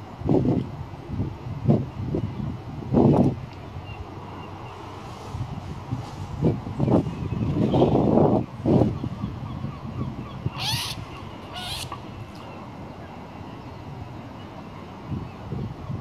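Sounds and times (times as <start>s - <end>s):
short bird calls: 10.5s - 12.6s.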